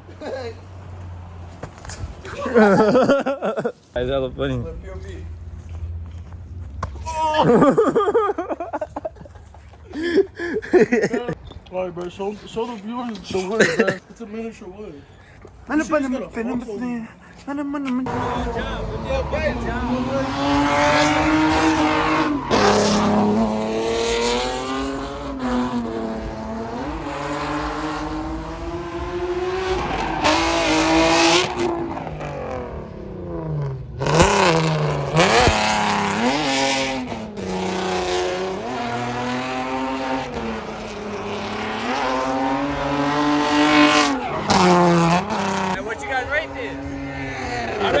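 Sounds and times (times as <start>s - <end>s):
engine revving hard: 18.1s - 48.0s
tire squeal: 19.2s - 23.9s, 29.6s - 31.8s.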